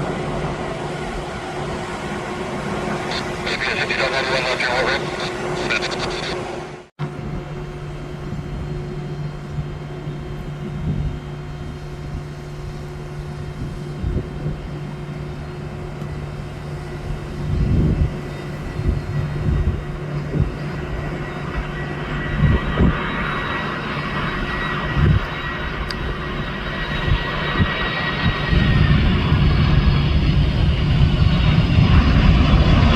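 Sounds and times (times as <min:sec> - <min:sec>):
distant jet engines rumbling: 0:00.0 - 0:32.9
wind buffeting microphone: 0:07.0 - 0:32.9.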